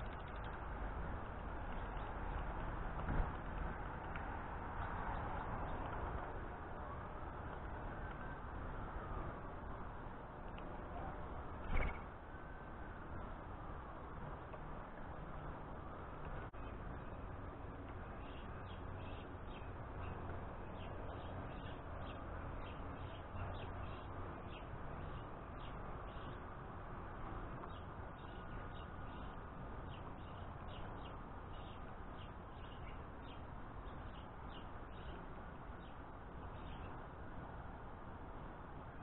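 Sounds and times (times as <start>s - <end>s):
birds chirping: 0.0s - 0.6s, 27.6s - 37.0s
low background noise: 0.0s - 39.0s.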